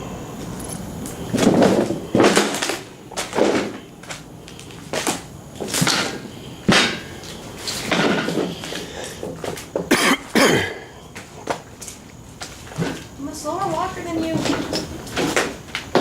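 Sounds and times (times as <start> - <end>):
footsteps crunching on debris: 11.1 - 16.0.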